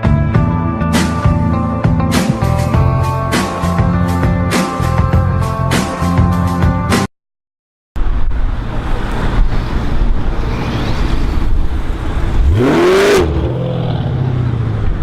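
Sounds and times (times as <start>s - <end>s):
car engine revving: 8.6s - 15.0s.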